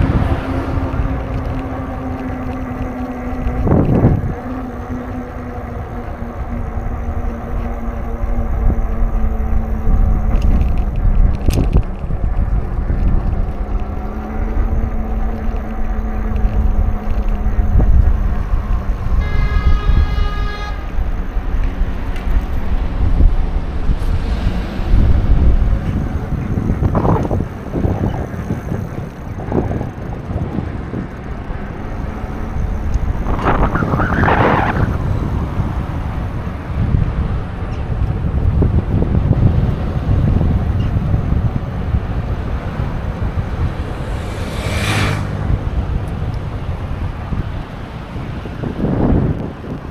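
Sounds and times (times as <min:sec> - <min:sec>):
passing traffic: 0:00.0 - 0:49.9
wind and road noise: 0:00.0 - 0:49.9
horn toot: 0:19.2 - 0:21.4.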